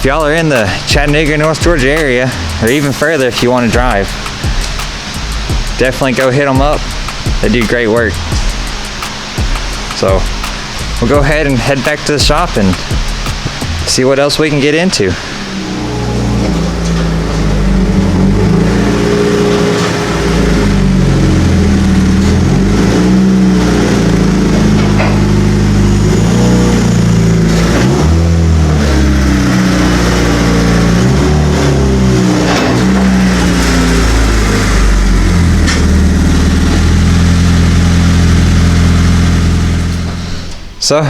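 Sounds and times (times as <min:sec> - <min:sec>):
car engine revving through gears: 0:00.0 - 0:40.8.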